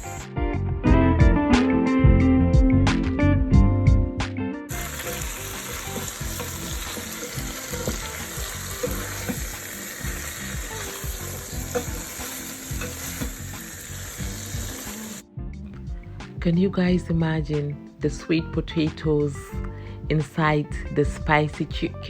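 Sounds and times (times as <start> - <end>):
food sizzling in a pan: 0.0 - 0.2, 4.7 - 15.2
plucked-string background music: 0.0 - 22.0.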